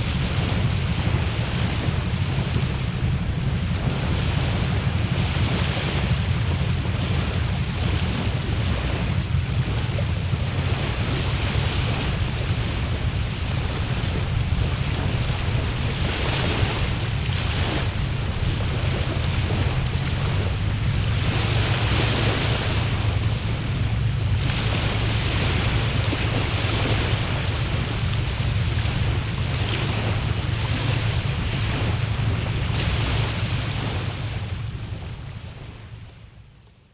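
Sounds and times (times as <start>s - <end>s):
wind on microphone: 0.0s - 36.0s
thin high whine: 0.0s - 36.5s.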